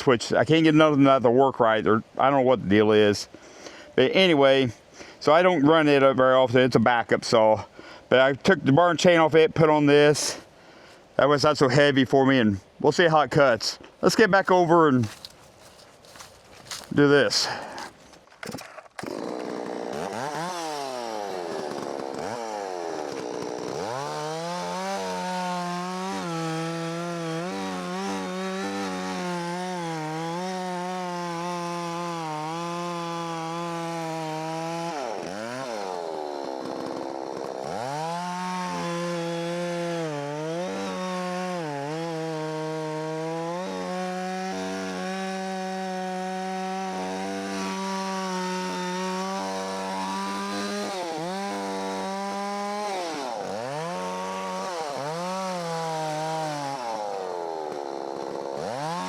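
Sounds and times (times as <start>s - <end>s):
chainsaw revving and cutting log: 15.0s - 59.0s.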